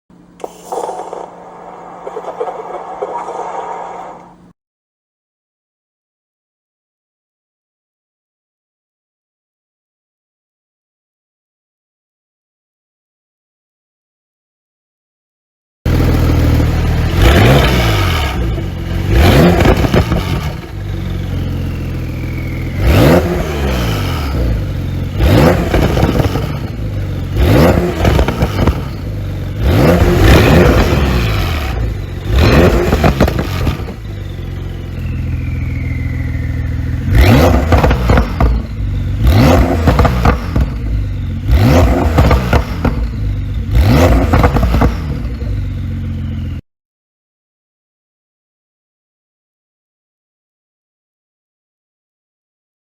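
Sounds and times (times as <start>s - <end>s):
car engine revving: 0.5s - 4.5s, 15.9s - 46.3s
turbo whistle: 34.1s - 37.4s.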